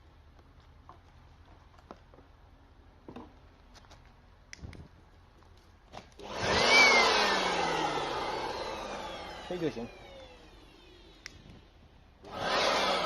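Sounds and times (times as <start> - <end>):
electric blower motor whine: 6.2 - 13.0.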